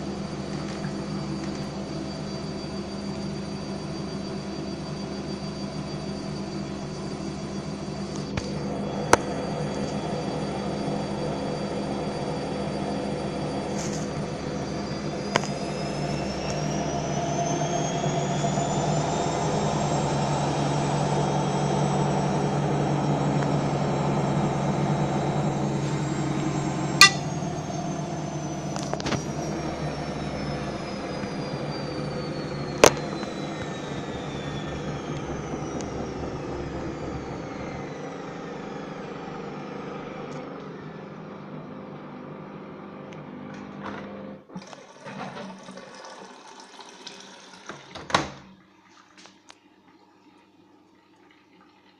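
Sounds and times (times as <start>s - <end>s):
washing machine spinning down: 0.0s - 51.9s
steady hum: 20.2s - 38.2s.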